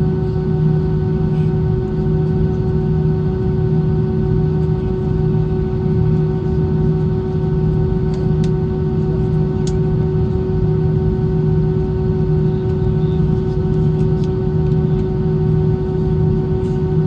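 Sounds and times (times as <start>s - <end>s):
droning hum: 0.0s - 17.0s
engine and airflow rumble: 0.0s - 17.0s.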